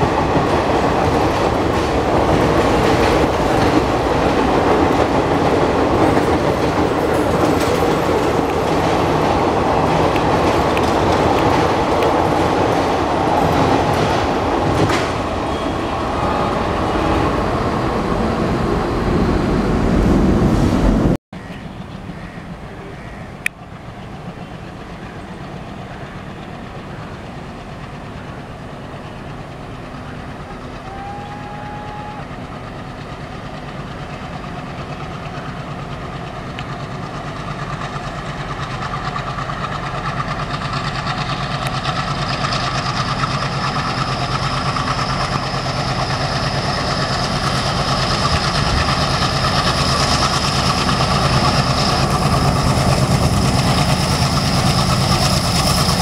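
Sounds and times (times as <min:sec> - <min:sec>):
distant locomotive engine: 0:00.0 - 0:56.0
train wheels clattering over joints: 0:00.3 - 0:15.4.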